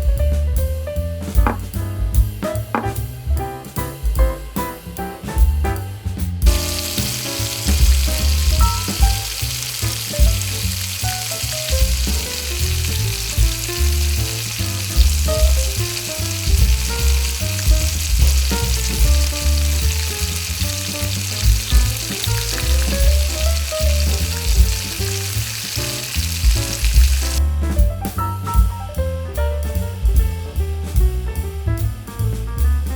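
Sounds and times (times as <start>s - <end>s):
jazz with bass line: 0.0s - 32.9s
mushrooms sizzling in a pan: 6.5s - 27.4s.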